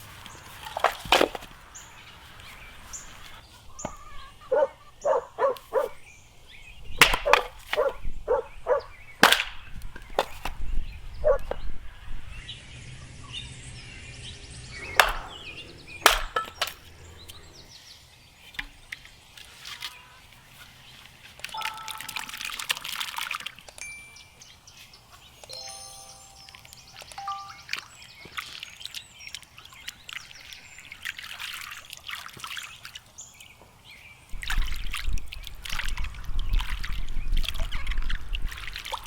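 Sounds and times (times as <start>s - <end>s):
sharp knocks and chops: 7.0s - 8.0s, 9.2s - 10.6s, 14.9s - 17.4s.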